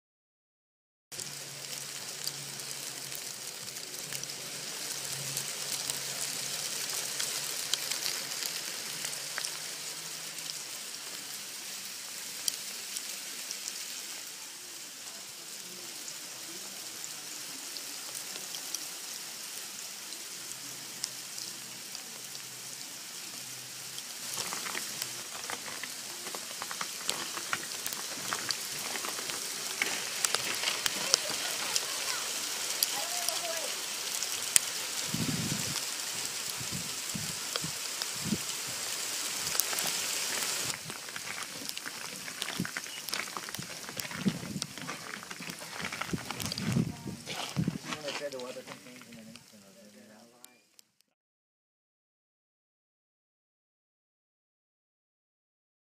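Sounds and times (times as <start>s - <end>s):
hailstones clicking on hard surfaces: 1.2s - 14.1s, 23.1s - 49.6s
hail falling: 1.2s - 49.5s.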